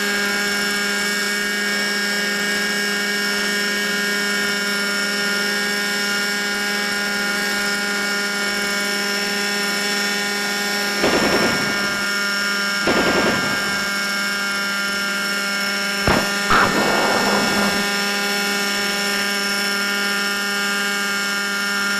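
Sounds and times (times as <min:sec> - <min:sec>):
rc helicopter engine whine: 0:00.0 - 0:21.9
machine-gun fire: 0:11.0 - 0:14.4, 0:16.1 - 0:18.9
sharp bang: 0:16.1 - 0:18.5
rushing whoosh: 0:16.4 - 0:18.2.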